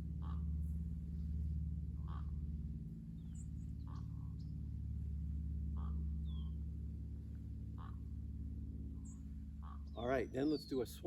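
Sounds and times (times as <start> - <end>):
steady low hum: 0.0 - 11.0
birds chirping: 9.0 - 11.0.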